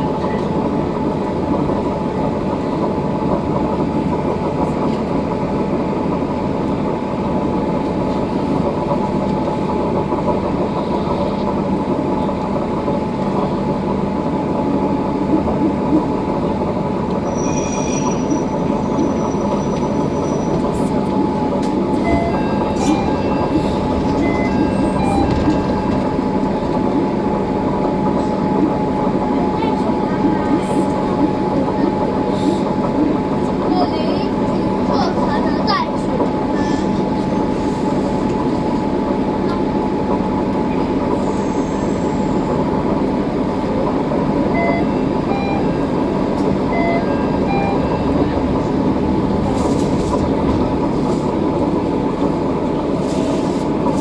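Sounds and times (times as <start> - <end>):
train running noise: 0.0 - 54.0
brief high squeal: 17.2 - 20.6.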